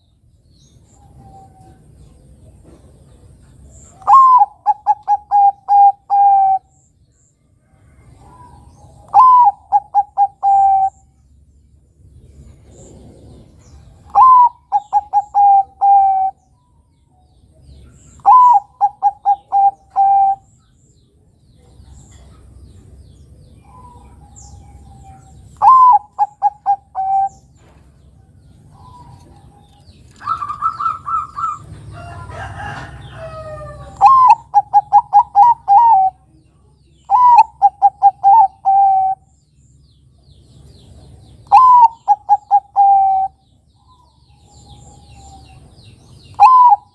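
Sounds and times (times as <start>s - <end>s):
dove cooing: 3.9s - 6.7s, 8.1s - 11.1s, 12.7s - 16.4s, 18.1s - 20.5s, 23.6s - 27.7s, 28.6s - 36.3s, 37.1s - 39.3s, 41.4s - 43.4s, 46.3s - 46.9s.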